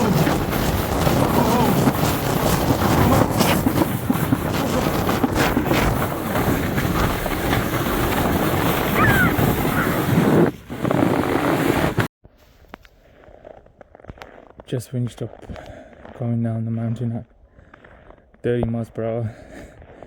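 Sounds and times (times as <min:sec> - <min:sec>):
sled knocking on bumps: 0:00.0 - 0:12.1
sled sliding over snow: 0:00.0 - 0:12.1
wind rushing over microphone: 0:00.0 - 0:12.1.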